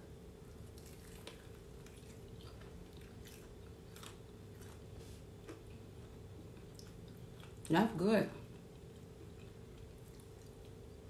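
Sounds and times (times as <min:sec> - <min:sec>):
crunching and chewing fried chicken: 0:00.2 - 0:07.7, 0:08.4 - 0:11.0.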